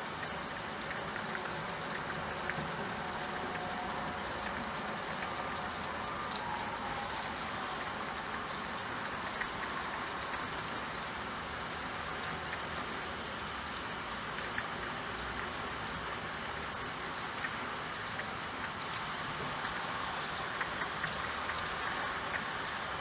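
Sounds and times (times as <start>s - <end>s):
steady rain falling: 0.0s - 23.0s
raindrop ticking: 17.1s - 23.0s.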